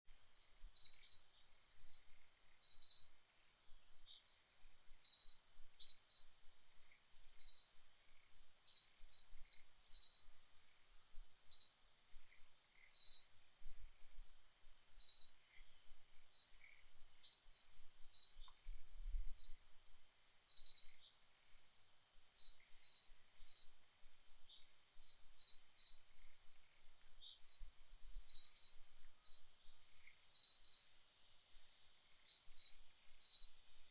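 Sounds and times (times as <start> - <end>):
faint high-pitched hum: 0.1 - 33.9
birds chirping: 0.4 - 3.2, 5.0 - 6.3, 6.9 - 10.4, 11.5 - 13.4, 14.9 - 18.6, 19.3 - 19.6, 20.5 - 21.2, 22.4 - 23.8, 24.5 - 27.6, 28.2 - 30.9, 32.3 - 33.6.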